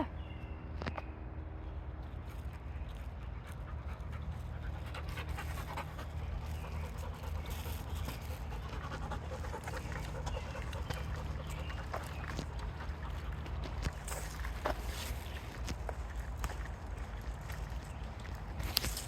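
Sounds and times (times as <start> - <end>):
steady low rumble: 0.0 - 19.0
dog panting: 3.2 - 14.8.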